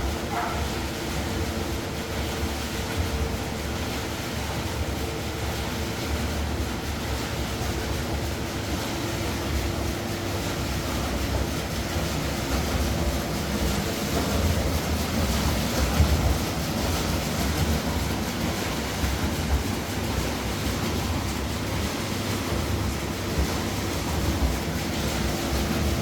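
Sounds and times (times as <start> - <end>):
washing machine rumbling: 0.0 - 26.0.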